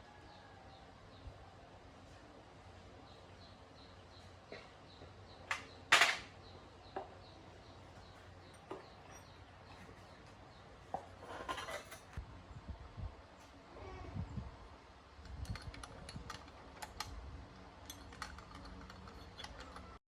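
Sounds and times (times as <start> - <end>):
metal tools clinking: 11.2 - 12.2, 15.2 - 20.0
scraping rattle: 11.2 - 12.2, 15.2 - 20.0.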